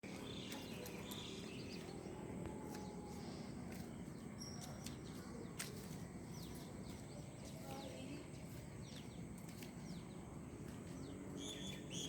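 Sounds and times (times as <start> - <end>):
faint bird chirps: 10.9 - 12.0.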